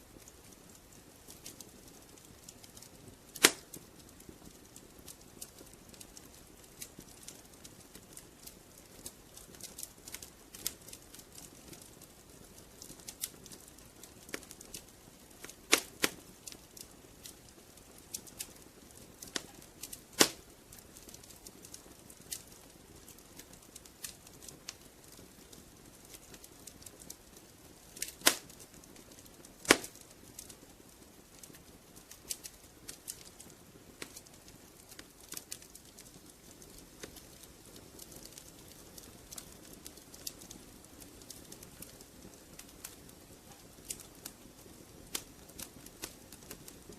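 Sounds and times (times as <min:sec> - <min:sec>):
soft low hiss: 0:00.0 - 0:46.9
wood fire crackling: 0:00.0 - 0:46.9
sharp fire pops: 0:00.2 - 0:13.6, 0:14.2 - 0:30.6, 0:31.3 - 0:41.9, 0:42.6 - 0:46.9.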